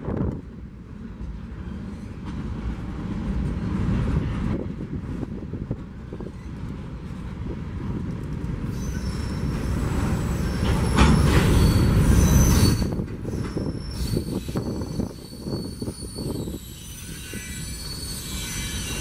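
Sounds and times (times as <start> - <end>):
freight train cars rumbling: 0.0 - 19.0
high-pitched wheel squeal: 8.7 - 19.0.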